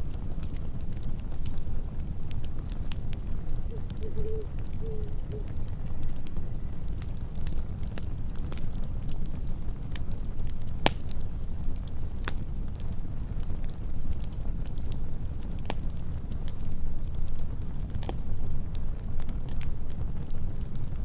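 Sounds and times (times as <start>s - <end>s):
campfire crackling and popping: 0.0s - 21.0s
cricket chirping: 2.4s - 6.7s.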